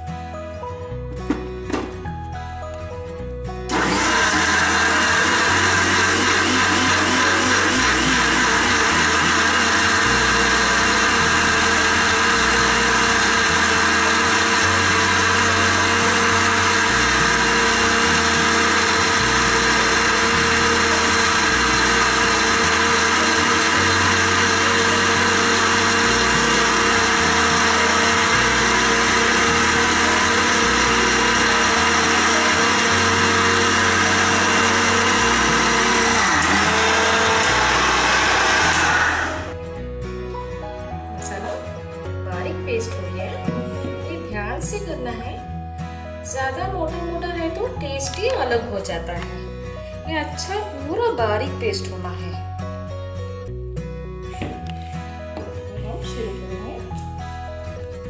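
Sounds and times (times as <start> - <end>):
mixer grinder motor whining: 3.7 - 39.6.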